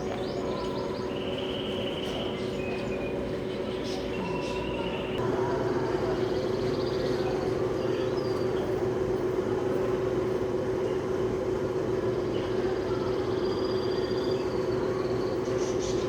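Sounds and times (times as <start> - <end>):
small birds chirping: 0.0 - 5.2.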